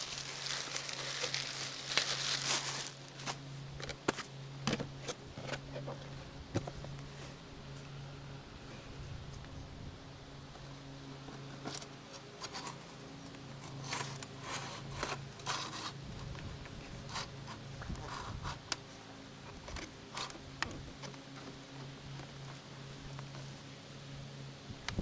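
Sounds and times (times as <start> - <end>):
steady low hum: 0.0 - 25.0
scraper scraping roof sealant: 13.6 - 16.0.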